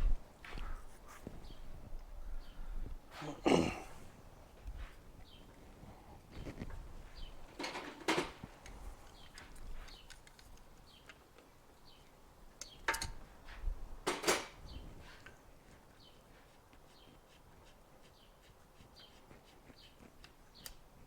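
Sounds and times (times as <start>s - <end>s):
metal tools clinking: 7.5s - 10.6s, 14.0s - 14.6s.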